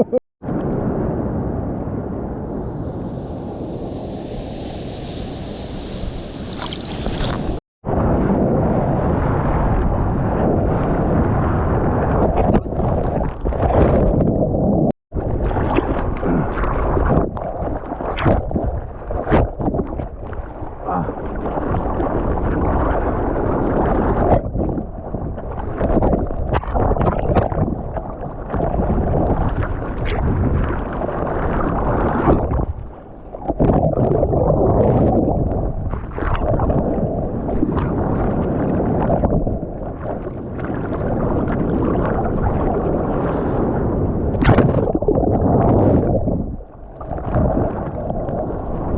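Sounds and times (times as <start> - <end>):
wind buffeting microphone: 0.0 - 48.9
water splashing and churning: 6.5 - 7.6, 11.0 - 48.9.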